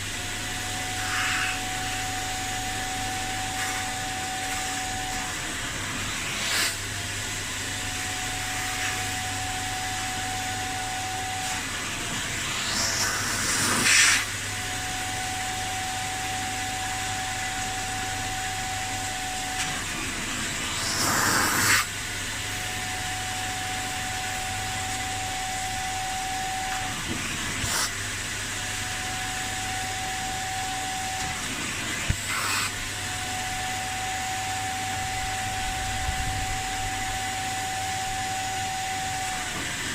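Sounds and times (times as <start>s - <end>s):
spray and suction hissing: 0.9s - 4.8s, 12.4s - 14.3s, 20.6s - 22.0s, 27.3s - 28.0s, 31.4s - 32.9s.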